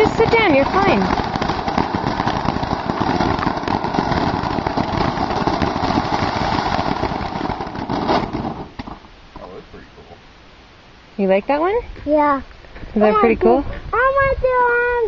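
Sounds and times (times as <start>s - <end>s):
firework crackling: 0.0s - 10.0s.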